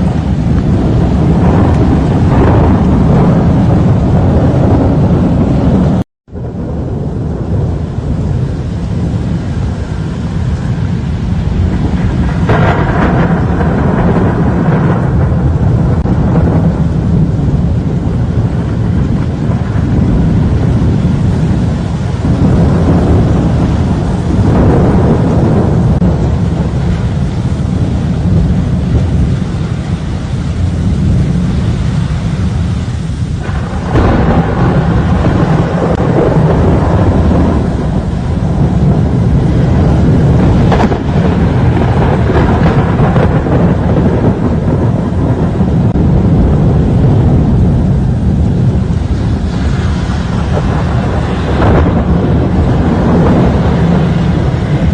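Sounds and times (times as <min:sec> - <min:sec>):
rain: 0:00.0 - 0:54.9
storm wind gusting: 0:00.0 - 0:54.9.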